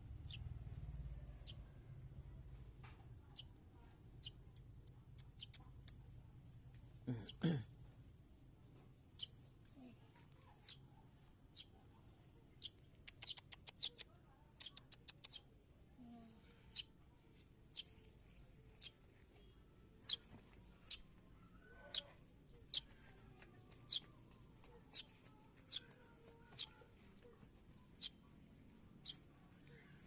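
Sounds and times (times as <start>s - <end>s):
sparrow chirping: 0.1s - 0.5s, 1.3s - 1.7s, 3.2s - 3.6s, 4.2s - 5.7s, 9.1s - 9.4s, 11.5s - 11.8s, 12.5s - 15.5s, 16.6s - 16.9s, 17.7s - 17.9s, 18.7s - 23.0s, 23.6s - 26.8s, 27.7s - 29.9s.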